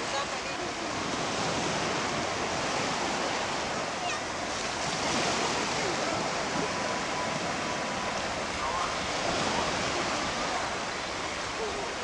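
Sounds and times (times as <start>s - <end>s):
faint distant voices: 0.0s - 12.0s
sea waves washing onto beach: 0.0s - 12.0s.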